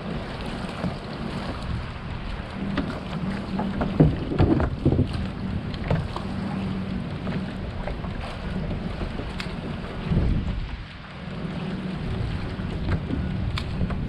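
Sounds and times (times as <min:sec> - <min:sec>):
steady low hum: 0:00.0 - 0:14.0
water moving around kayak: 0:00.0 - 0:14.0
wind buffeting microphone: 0:00.0 - 0:14.0
sharp knocks or splashes: 0:02.6 - 0:06.3.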